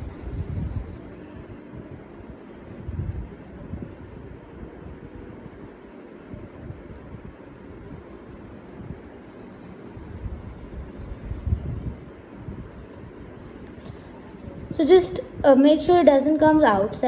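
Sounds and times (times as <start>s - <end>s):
pencil scratching on paper: 0.0s - 1.2s, 9.0s - 15.4s.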